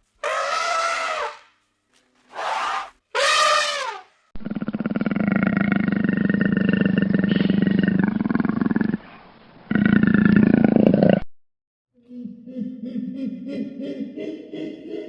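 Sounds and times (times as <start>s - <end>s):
animal crying: 0.2s - 1.4s
animal pulsing growl: 4.4s - 9.0s.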